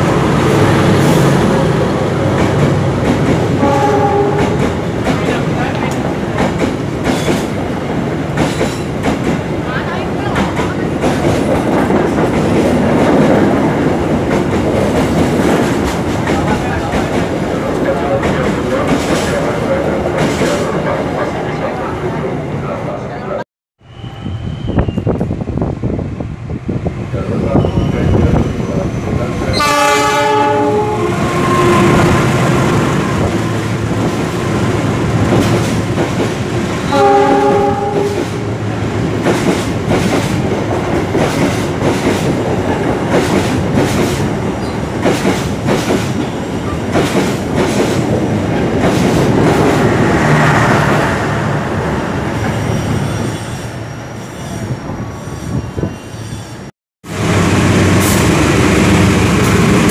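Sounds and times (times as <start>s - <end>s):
train wheels clattering: 2.2s - 7.7s, 8.3s - 9.5s, 39.1s - 50.0s
train horn blasts: 3.6s - 4.7s, 29.5s - 32.4s, 36.9s - 38.5s.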